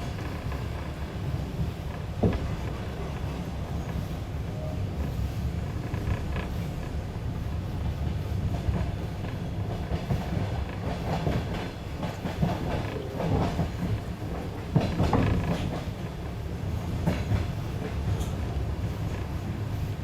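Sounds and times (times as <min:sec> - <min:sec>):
train carriage rumbling: 0:00.0 - 0:20.0
wheels clacking over rail joints: 0:08.6 - 0:16.0.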